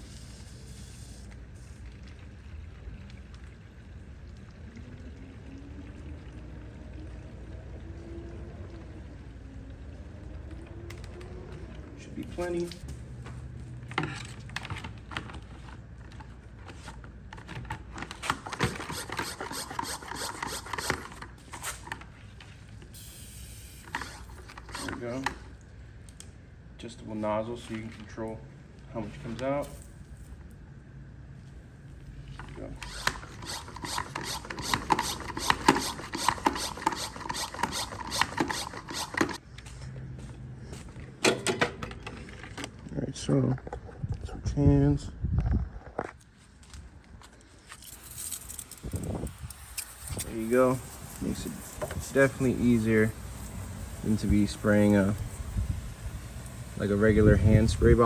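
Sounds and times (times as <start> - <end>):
plastic sprayer rubbing and scraping: 18.0 - 22.4, 23.9 - 25.3, 32.6 - 39.4, 47.8 - 55.3.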